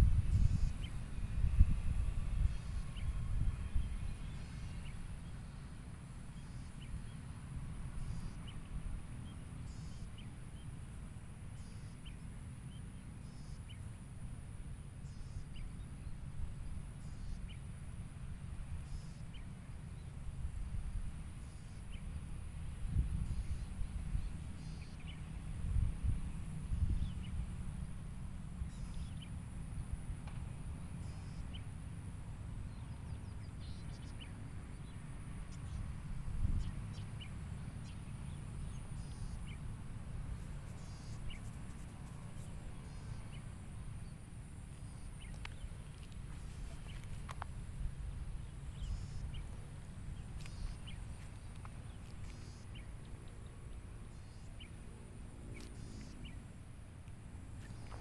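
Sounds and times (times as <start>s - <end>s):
bird chirps: 48.4s - 53.4s.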